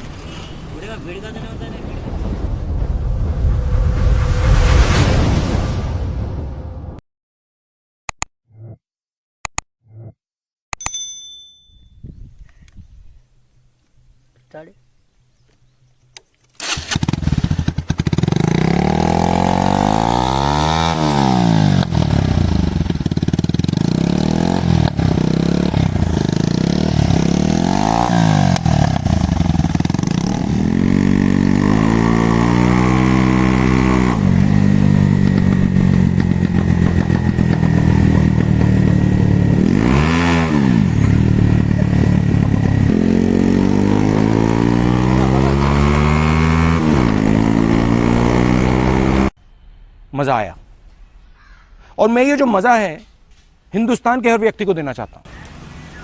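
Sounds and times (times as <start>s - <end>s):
motorcycle engine revving: 0.0s - 2.6s, 16.6s - 49.3s.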